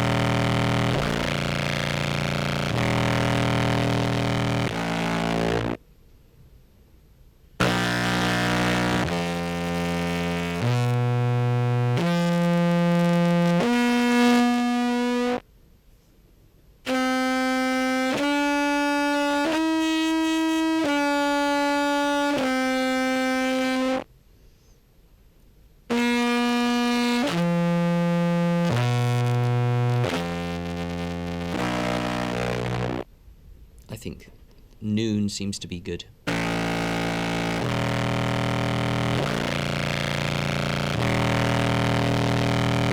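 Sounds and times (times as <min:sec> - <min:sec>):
distorted contrabass clarinet: 0:00.0 - 0:05.8, 0:07.6 - 0:15.4, 0:16.9 - 0:24.0, 0:25.9 - 0:33.0, 0:36.3 - 0:42.9.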